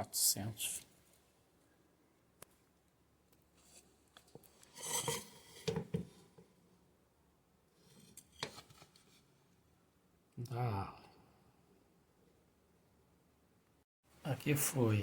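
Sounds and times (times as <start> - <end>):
rubbing and scraping handling: 3.6 - 6.4.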